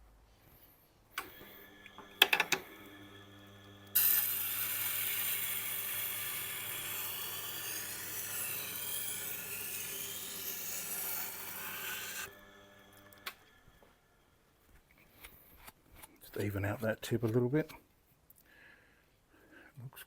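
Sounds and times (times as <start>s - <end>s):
motor hum: 1.2s - 14.2s
knife grinding on wheel: 3.9s - 13.3s.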